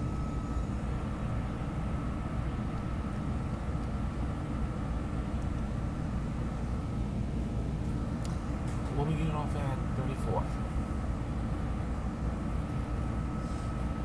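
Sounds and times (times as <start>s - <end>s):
faint high whine: 0.0s - 2.2s.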